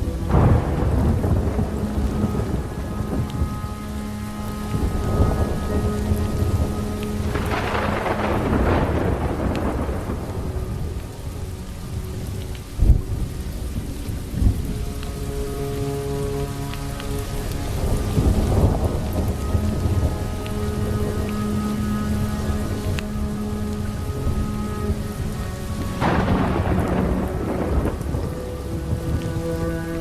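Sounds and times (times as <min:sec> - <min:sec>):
sharp thunder cracks: 0:00.0 - 0:03.5, 0:07.3 - 0:11.4, 0:25.9 - 0:28.7
rolling thunder: 0:00.0 - 0:16.2, 0:17.2 - 0:30.0
slow reverberant music: 0:00.0 - 0:30.0
steady rain: 0:00.0 - 0:30.0.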